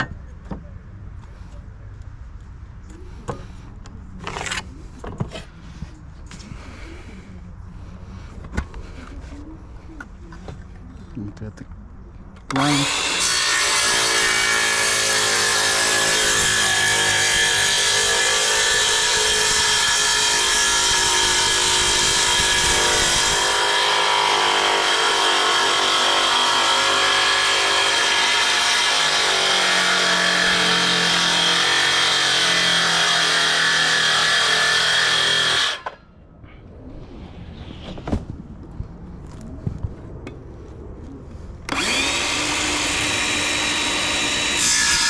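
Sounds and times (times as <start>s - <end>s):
circular saw cutting wood: 12.5s - 36.0s, 41.7s - 45.0s.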